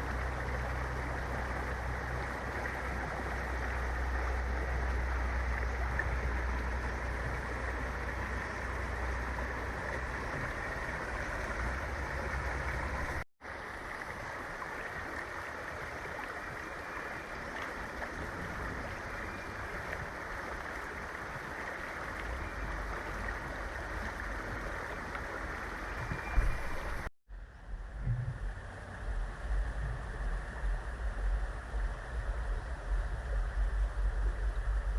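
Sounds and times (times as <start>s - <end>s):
river water rushing: 0.0s - 27.1s.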